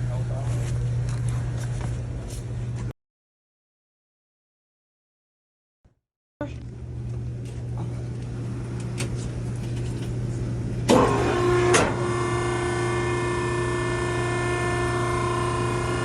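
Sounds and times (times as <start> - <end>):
multi-tone machine whine: 9.4 - 16.0.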